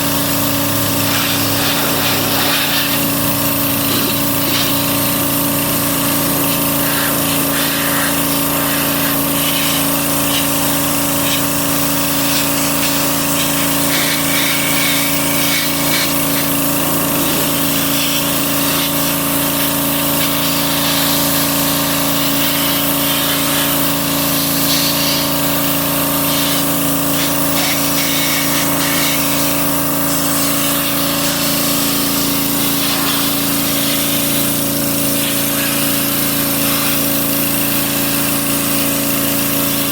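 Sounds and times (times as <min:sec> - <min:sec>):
machine motor humming: 0:00.0 - 0:28.0
high hiss or scraping: 0:01.0 - 0:04.8.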